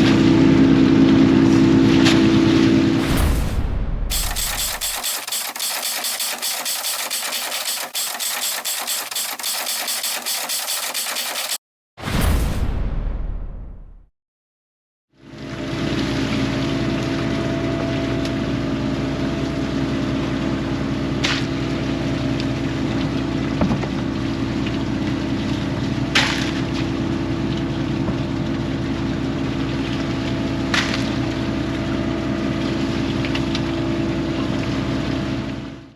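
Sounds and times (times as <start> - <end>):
engine running with rapid pulse: 4.1 - 11.6
loud sudden sound: 12.0 - 14.0.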